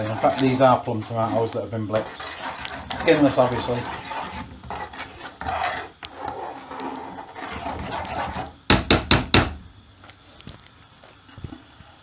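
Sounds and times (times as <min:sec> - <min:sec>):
utensil knocking on pan: 0:08.7 - 0:09.6.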